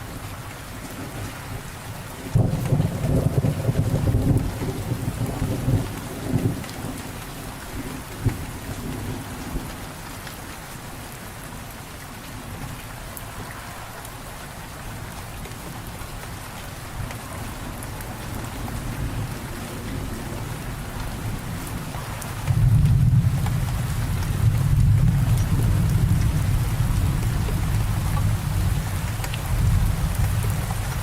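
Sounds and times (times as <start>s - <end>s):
steady rain: 0.0s - 31.0s
low rumble of thunder: 0.1s - 9.9s, 17.0s - 31.0s.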